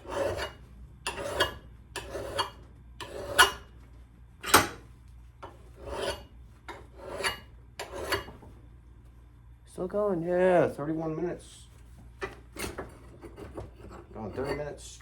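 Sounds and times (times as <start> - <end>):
hand file rasping on steel: 0.0 - 3.6, 5.8 - 8.3.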